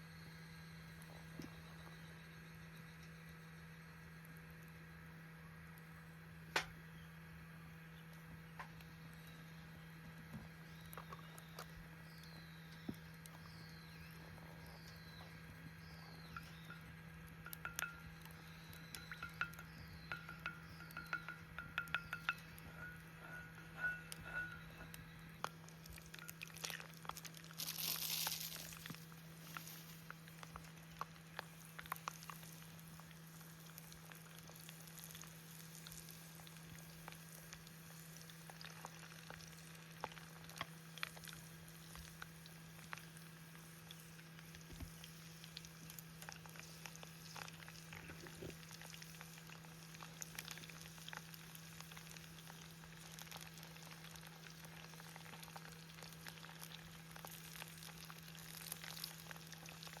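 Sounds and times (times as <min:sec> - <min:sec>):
low steady hum: 0:00.0 - 1:00.0
food sizzling in a pan: 0:26.1 - 0:30.1.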